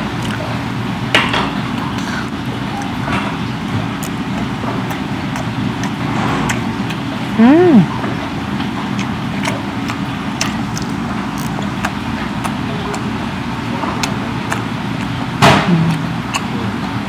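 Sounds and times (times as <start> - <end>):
person chewing: 0.0 - 0.6, 1.6 - 17.0
low background hum: 0.0 - 17.0
soft mouth clicks: 4.0 - 7.0, 8.9 - 13.0, 14.0 - 16.7.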